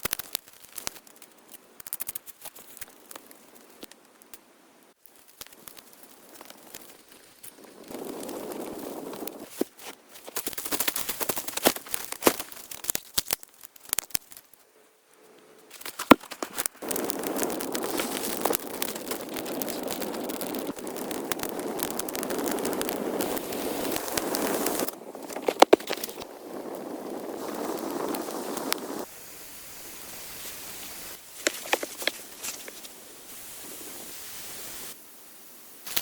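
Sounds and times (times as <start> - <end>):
crackling with sharp snaps: 0.0 - 29.1, 29.9 - 35.0, 35.8 - 36.0
steady rushing noise: 16.1 - 35.8.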